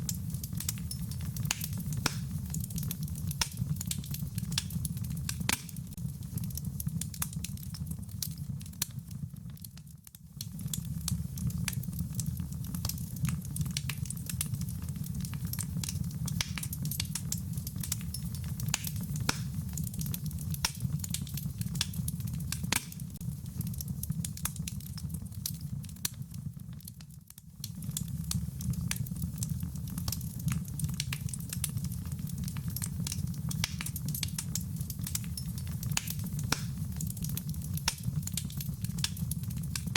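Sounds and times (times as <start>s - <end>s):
wood fire crackling and popping: 0.0s - 39.9s
rain pattering: 27.6s - 39.9s.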